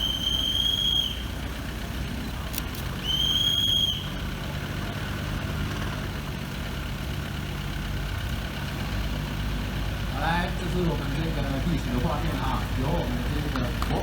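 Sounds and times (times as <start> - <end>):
high-pitched train whistle blasts: 0.0 - 1.3, 3.0 - 4.1
locomotive engine running: 0.0 - 14.0.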